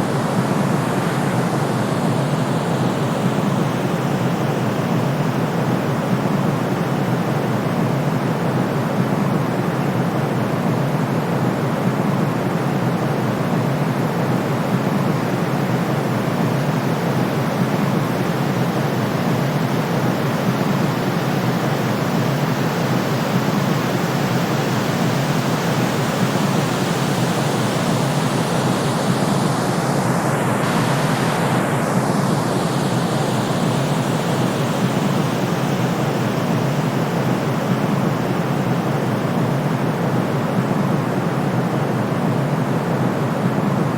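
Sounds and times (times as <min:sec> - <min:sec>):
white noise hiss: 0:00.0 - 0:43.9.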